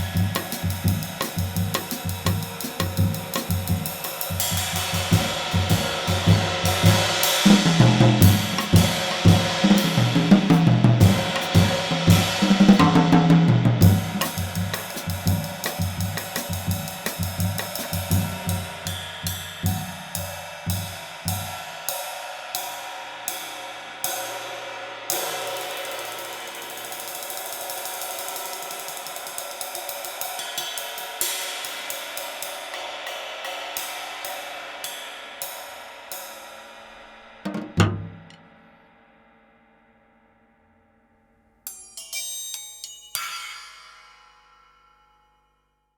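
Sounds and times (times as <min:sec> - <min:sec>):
drum kit playing: 0:00.0 - 0:21.5, 0:37.5 - 0:38.4
ride cymbal played with sticks: 0:00.0 - 0:37.4, 0:41.6 - 0:45.4.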